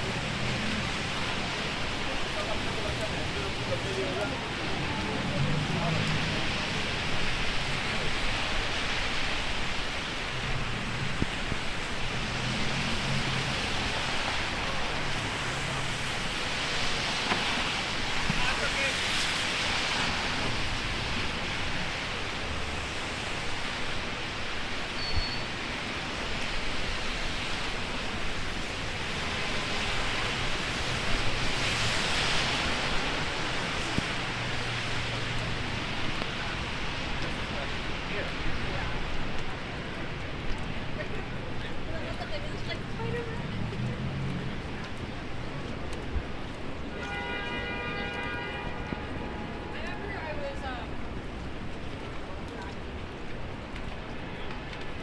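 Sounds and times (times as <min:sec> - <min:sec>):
heavy rain falling: 0:00.0 - 0:55.0
gusting wind: 0:04.3 - 0:47.3.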